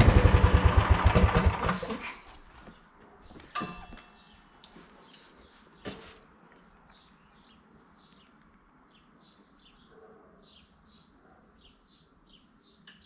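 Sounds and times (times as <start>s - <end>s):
bird chirping: 2.6s - 13.0s.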